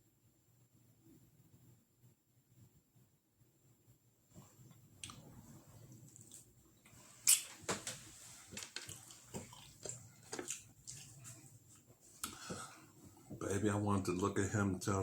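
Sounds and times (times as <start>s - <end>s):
wet chewing and mouth smacks: 5.0s - 7.8s, 8.5s - 11.4s, 12.2s - 12.5s.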